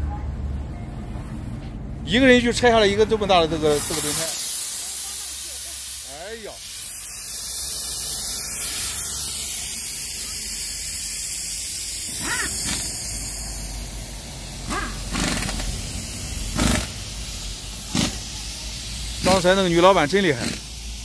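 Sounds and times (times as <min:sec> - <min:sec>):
steady high hiss: 0:02.1 - 0:21.0
short sharp noises: 0:12.1 - 0:13.1.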